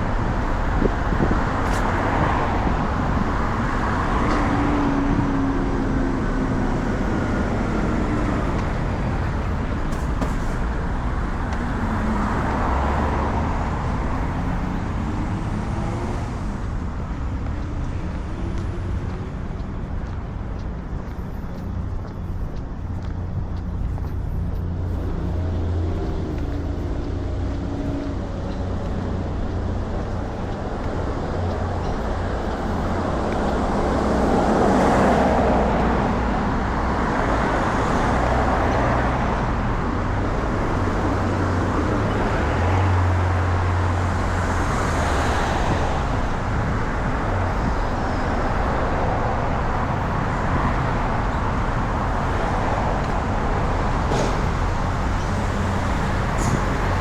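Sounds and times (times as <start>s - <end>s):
car passing: 0.0s - 57.0s
traffic rumble: 0.0s - 57.0s.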